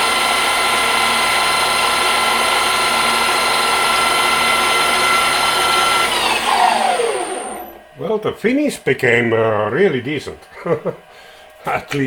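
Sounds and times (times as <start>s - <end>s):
lathe cutting hiss: 0.0s - 7.8s.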